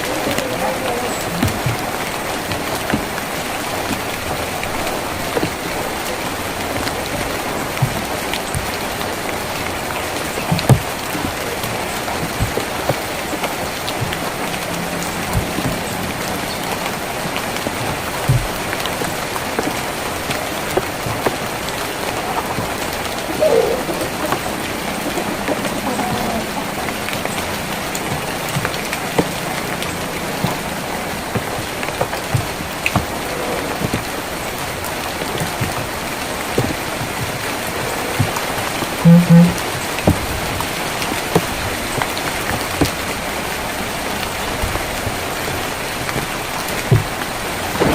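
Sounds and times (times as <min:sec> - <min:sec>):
rain on a tin roof: 0:00.0 - 0:47.9
drips striking metal: 0:39.0 - 0:39.6
short pitched sound: 0:39.0 - 0:39.6.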